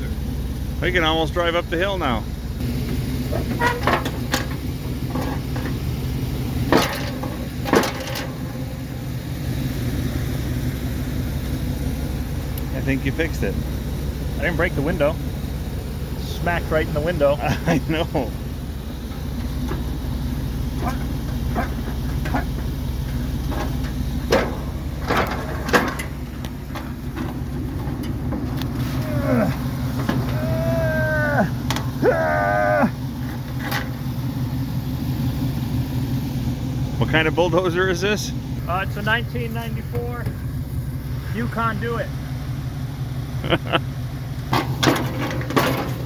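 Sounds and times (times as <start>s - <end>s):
truck engine running under load: 0.0s - 46.0s
wood smacking a truck: 3.2s - 8.9s, 19.0s - 34.0s, 44.4s - 46.0s.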